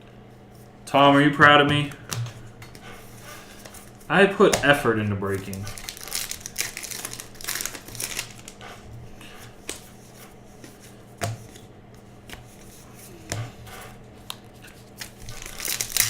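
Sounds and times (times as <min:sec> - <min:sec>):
trading cards flipping: 0:01.8 - 0:08.6, 0:14.2 - 0:16.0
foil wrappers crinkling: 0:04.7 - 0:08.6, 0:14.3 - 0:16.0.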